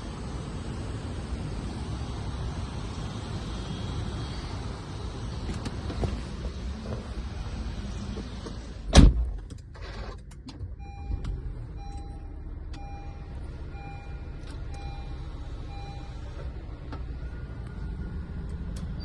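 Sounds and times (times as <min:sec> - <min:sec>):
low steady rumble: 0:00.0 - 0:19.0
car door shutting: 0:08.1 - 0:11.4
car warning chime beeping: 0:10.8 - 0:19.0.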